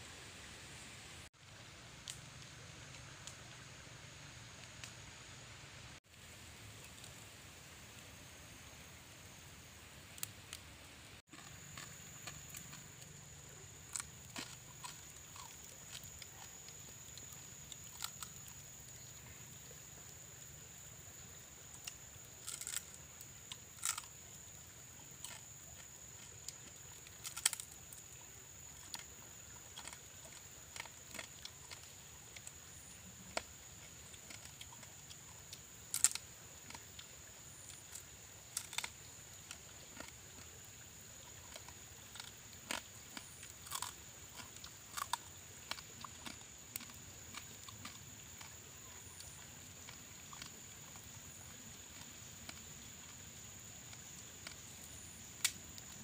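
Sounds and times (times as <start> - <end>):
crunching crab shell: 11.3 - 19.1, 21.8 - 24.4, 25.0 - 28.1, 28.8 - 40.6, 41.3 - 53.2.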